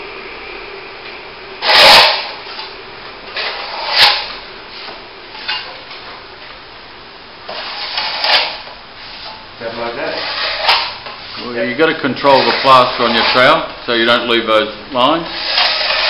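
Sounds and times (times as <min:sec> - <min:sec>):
trowel scraping wet plaster: 0:01.6 - 0:02.3, 0:03.4 - 0:04.4, 0:07.5 - 0:08.7, 0:09.7 - 0:11.0, 0:12.2 - 0:13.6, 0:15.2 - 0:16.0.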